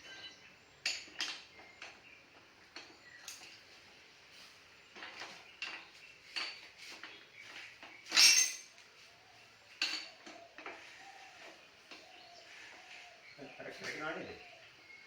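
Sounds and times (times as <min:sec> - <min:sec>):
metal tools clinking: 0:08.1 - 0:08.8.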